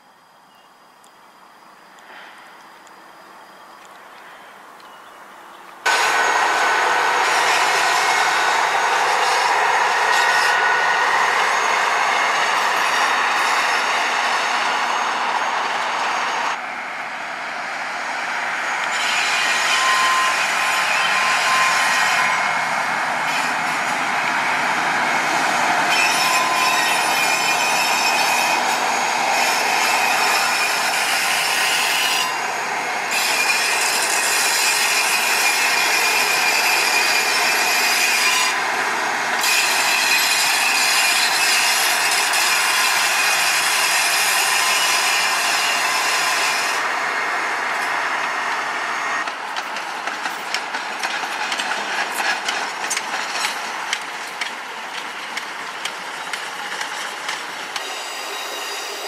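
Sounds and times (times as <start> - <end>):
train wheels on rails: 5.6 - 59.0
high wheel squeal: 5.8 - 49.4, 56.2 - 59.0
wheels clattering over rail joints: 18.8 - 47.0, 47.6 - 59.0.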